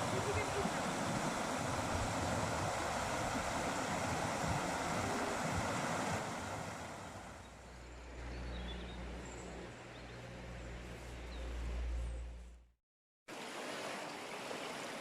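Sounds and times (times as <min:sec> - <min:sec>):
rushing river water: 0:00.0 - 0:07.7, 0:13.3 - 0:15.0.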